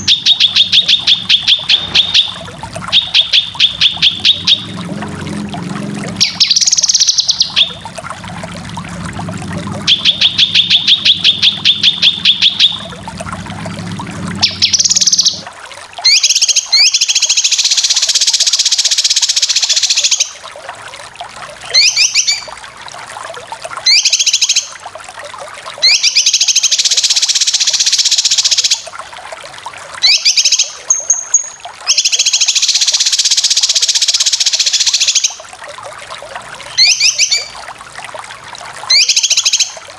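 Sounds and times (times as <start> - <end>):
bird trilling high notes: 0.0 - 4.7, 6.2 - 7.8, 9.8 - 12.9, 14.4 - 15.4, 36.6 - 37.6.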